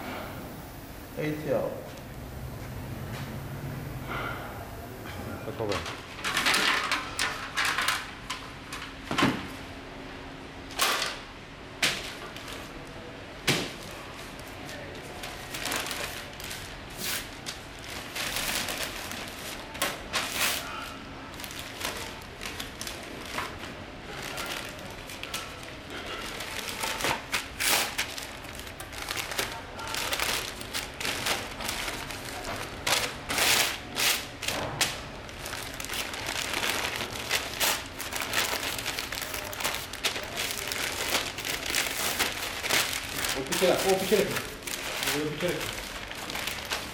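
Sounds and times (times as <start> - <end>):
packaging crinkling and rustling: 13.8 - 46.9.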